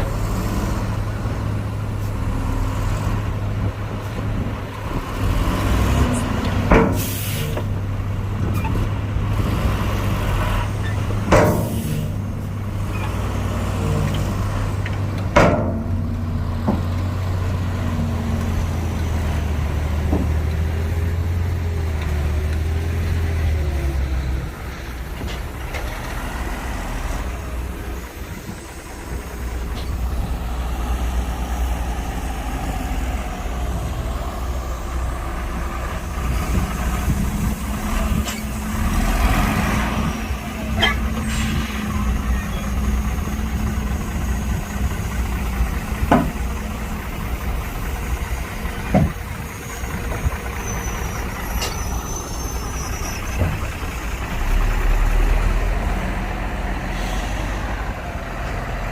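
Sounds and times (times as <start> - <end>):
diesel engines rumbling: 0.0 - 58.9
sharp knocks: 11.3 - 11.8, 46.1 - 46.4.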